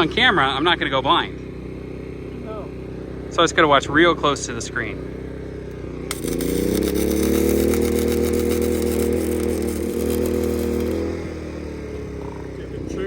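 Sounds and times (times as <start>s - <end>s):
mechanical hum: 6.0s - 11.7s
welding arc crackling and sizzling: 6.1s - 11.3s.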